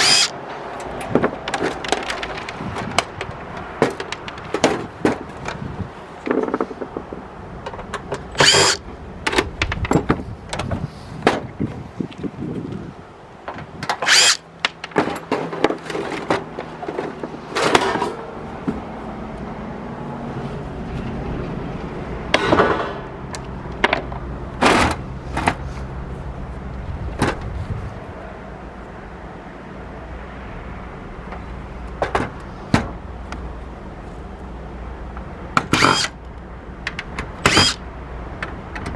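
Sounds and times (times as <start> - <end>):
small motor humming: 0.0 - 0.3, 8.4 - 8.8, 14.0 - 14.4
clicks and knocks of parts and tools: 0.0 - 5.6, 6.2 - 11.5, 35.1 - 37.8, 38.4 - 38.9.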